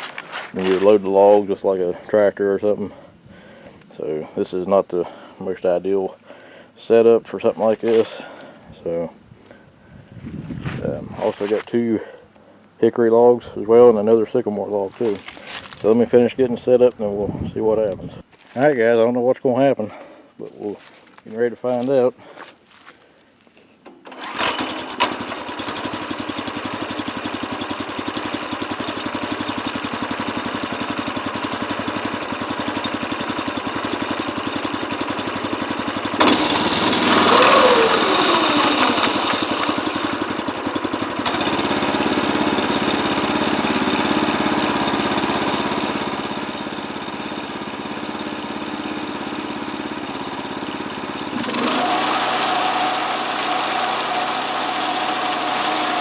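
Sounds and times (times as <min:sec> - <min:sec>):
small gasoline engine running: 0:00.0 - 0:01.4, 0:07.6 - 0:08.6, 0:24.0 - 0:56.0
saw whine falling in pitch: 0:36.2 - 0:40.2.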